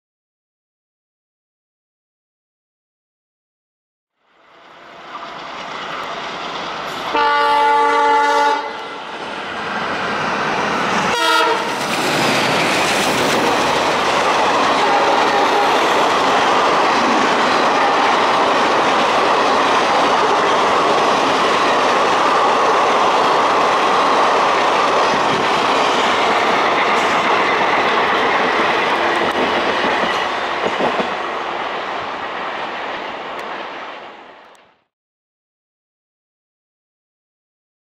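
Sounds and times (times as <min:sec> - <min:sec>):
diesel locomotive passing: 0:04.2 - 0:34.7
train horn blast: 0:07.0 - 0:09.0, 0:11.1 - 0:11.8, 0:14.8 - 0:16.0
train wheels clacking over rail joints: 0:11.4 - 0:31.2.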